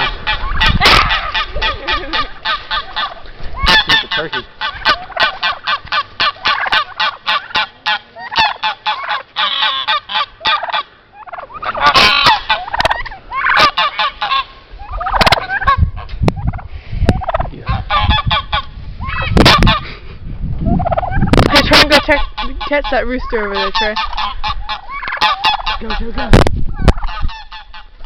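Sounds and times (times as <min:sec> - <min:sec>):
poultry squawking: 0:00.0 - 0:19.8, 0:20.7 - 0:28.0.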